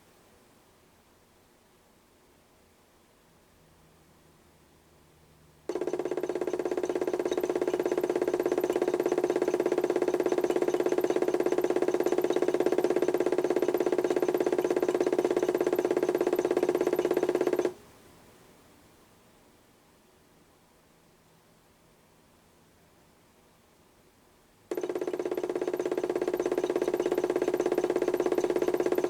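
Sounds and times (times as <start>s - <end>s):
toy washing machine motor pulsing: 5.7s - 17.8s, 24.7s - 29.0s.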